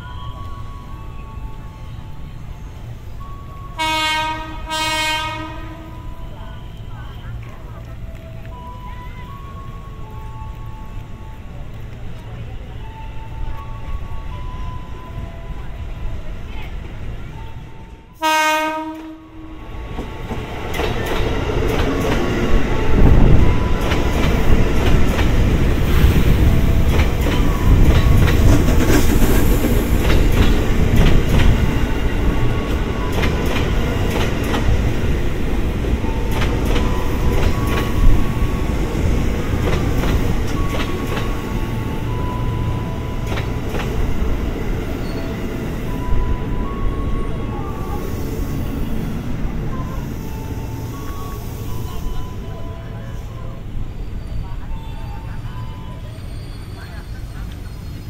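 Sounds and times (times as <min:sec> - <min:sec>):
rail clicks: 0:00.0 - 0:58.0
train heavy rumble: 0:00.0 - 0:58.0
train horn note: 0:03.8 - 0:06.2, 0:18.2 - 0:19.7
brief high squeals: 0:53.5 - 0:58.0.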